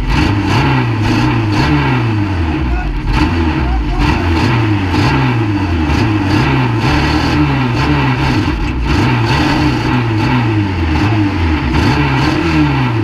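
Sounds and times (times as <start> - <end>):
racing car engine revving: 0.0 - 13.0.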